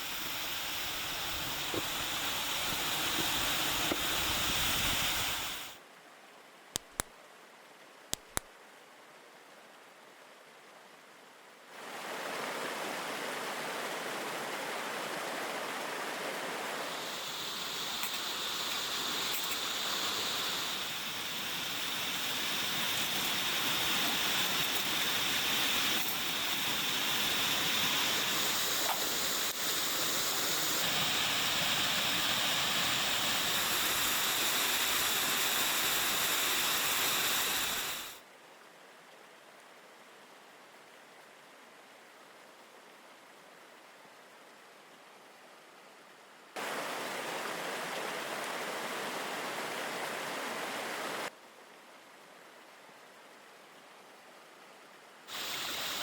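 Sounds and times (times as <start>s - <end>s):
waterfall rushing: 11.8s - 38.2s, 55.3s - 56.0s.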